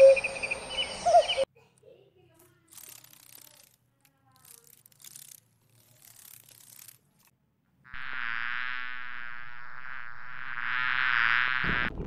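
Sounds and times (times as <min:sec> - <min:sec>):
wasps buzzing: 0:02.7 - 0:03.8, 0:04.4 - 0:07.3, 0:07.9 - 0:11.9.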